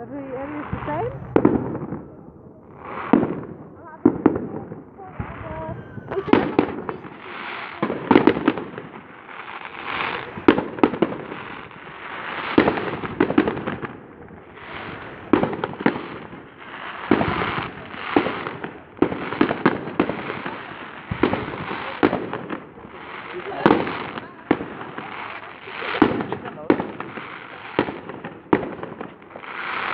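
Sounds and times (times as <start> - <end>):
fireworks bangs: 0.0 - 29.9
fireworks crackling: 0.0 - 29.9.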